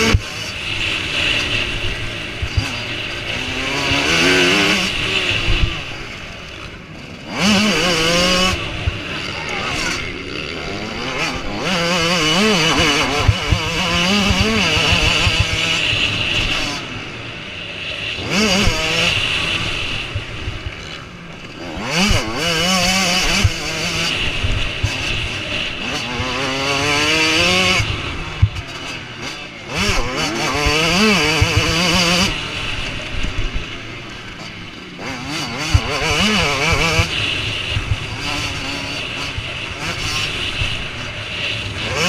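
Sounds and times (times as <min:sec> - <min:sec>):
motorcycles racing past: 0:00.0 - 0:42.0.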